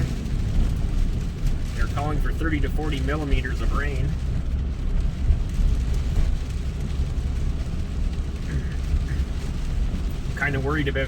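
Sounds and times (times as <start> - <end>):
car engine rumble from inside: 0.0 - 11.0
tyres hissing on wet road: 0.0 - 11.0.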